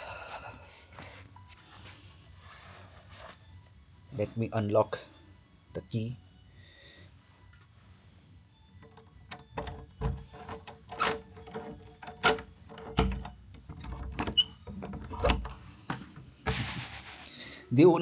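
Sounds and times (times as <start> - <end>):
key working a door lock: 8.8 - 16.1
metallic clicks and rattles: 8.8 - 16.3.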